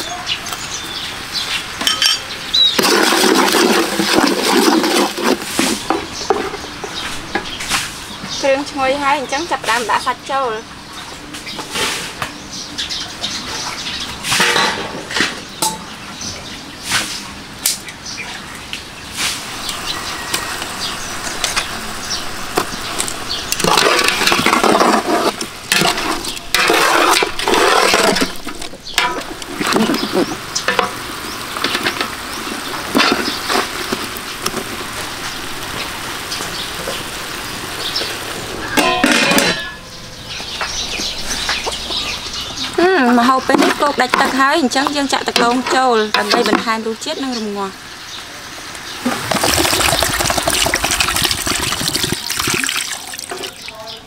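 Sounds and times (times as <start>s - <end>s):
meat sizzling in sauce: 19.1s - 24.6s, 25.2s - 38.8s, 47.8s - 53.7s.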